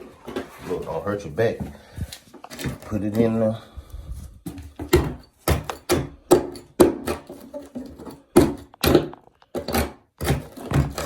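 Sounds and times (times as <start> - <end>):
hand tool knocking and scraping floor: 1.5 - 3.5, 4.4 - 11.0.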